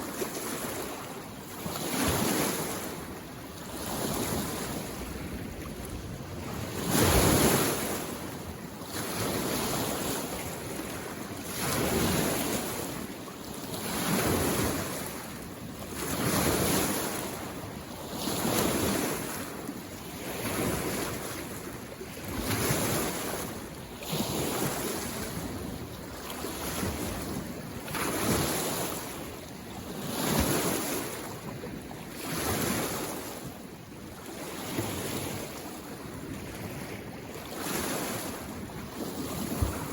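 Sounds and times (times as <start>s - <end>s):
small waves washing on shore: 0.0s - 39.9s.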